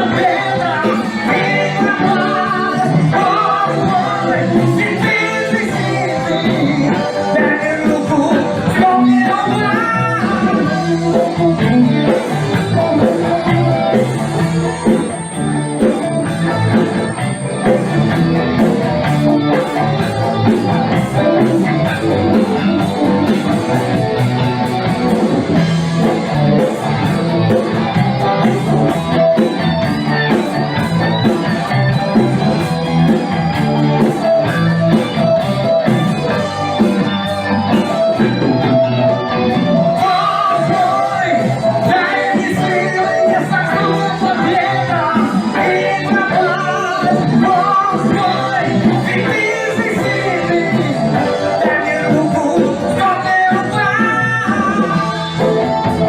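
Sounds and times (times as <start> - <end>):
electric guitar: 0.0 - 56.0.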